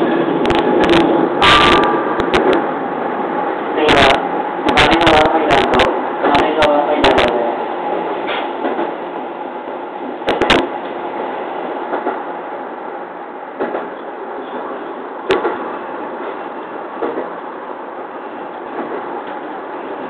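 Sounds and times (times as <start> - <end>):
train wheels rumbling on rail: 0.0 - 20.0
sharp rail clacks: 0.4 - 2.7, 11.9 - 12.2, 13.6 - 14.0, 15.3 - 15.7, 17.0 - 17.4.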